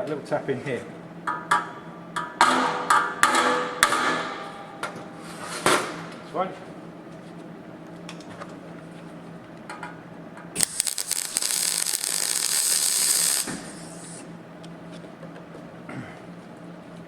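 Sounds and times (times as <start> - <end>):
steady low hum: 10.5 - 17.0
welder arc crackling: 10.6 - 14.3.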